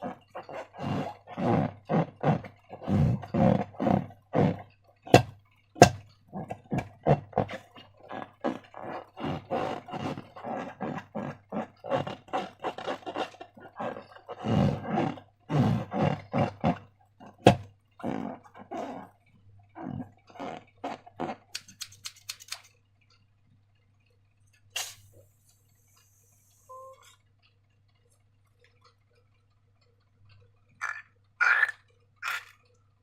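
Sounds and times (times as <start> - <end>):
slime squelching by hand: 0.0 - 19.2
sharp snaps: 21.5 - 22.7.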